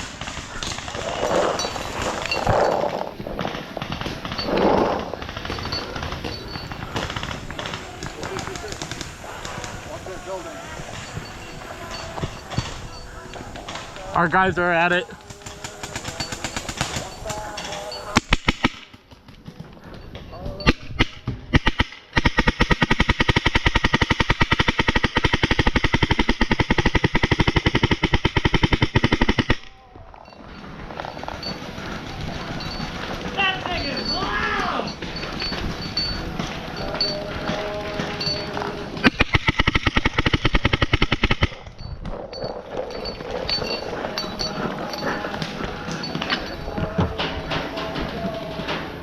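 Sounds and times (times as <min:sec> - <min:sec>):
paintball marker rapid firing: 0:03.4 - 0:11.0, 0:15.2 - 0:17.5, 0:18.2 - 0:19.6, 0:20.8 - 0:29.7, 0:35.1 - 0:41.7.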